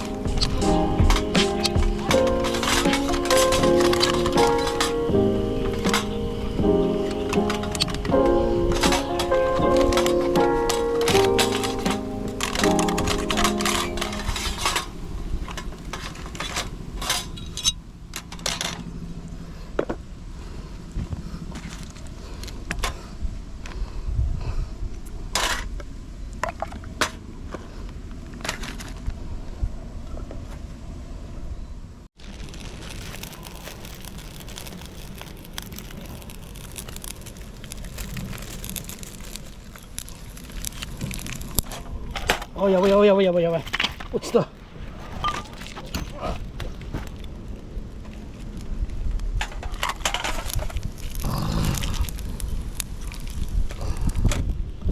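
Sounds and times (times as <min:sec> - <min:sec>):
wood fire crackling and popping: 0:00.0 - 0:18.8, 0:32.2 - 0:54.9
steady hiss: 0:00.0 - 0:21.5.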